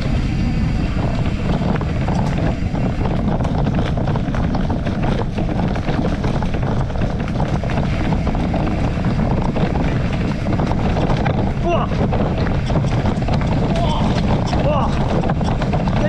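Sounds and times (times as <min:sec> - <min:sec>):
wind buffeting microphone: 0:00.0 - 0:16.0
small rattles and knocks: 0:01.0 - 0:16.0.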